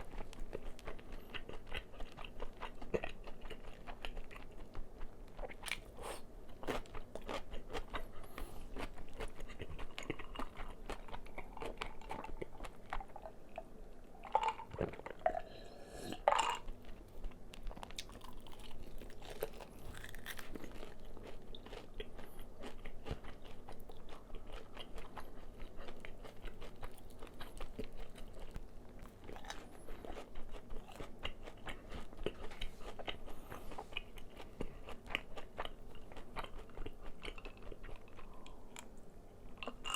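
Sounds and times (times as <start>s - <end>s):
chewing crispy fried chicken: 0.0s - 15.4s, 16.2s - 39.9s
loud crunchy bites: 18.0s - 21.8s.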